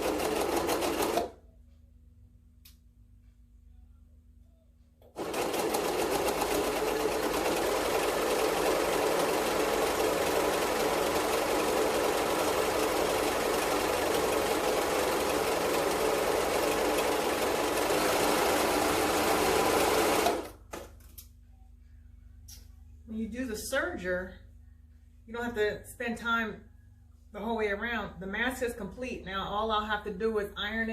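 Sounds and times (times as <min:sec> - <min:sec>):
overlock sewing machine running: 0:00.0 - 0:01.3, 0:05.1 - 0:20.6.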